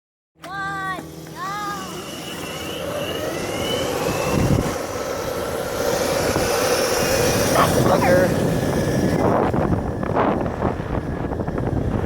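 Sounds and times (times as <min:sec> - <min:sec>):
vehicle whine rising in pitch: 0:00.6 - 0:12.0
rushing wind noise: 0:03.4 - 0:12.0.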